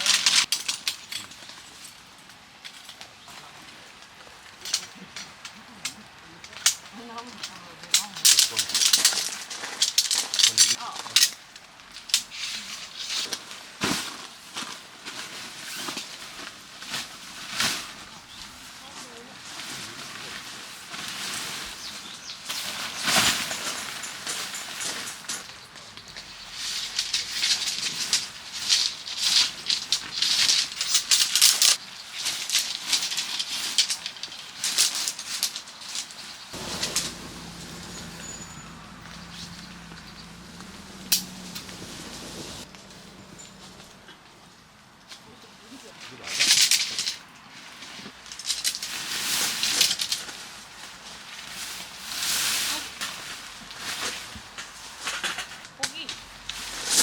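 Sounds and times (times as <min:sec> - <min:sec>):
rustling and handling noises: 0:00.0 - 0:44.4, 0:45.0 - 0:57.0
low hum: 0:36.6 - 0:44.1.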